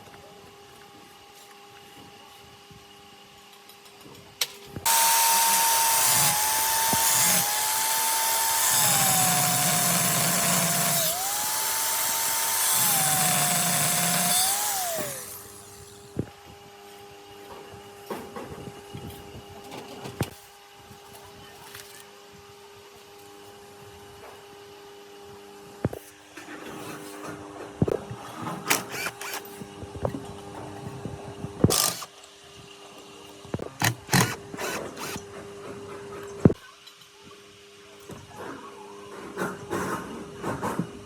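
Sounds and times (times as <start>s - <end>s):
electric power tool running: 4.8s - 16.0s, 31.7s - 32.1s, 33.8s - 35.2s
knocks and clicks of parts: 33.6s - 35.2s.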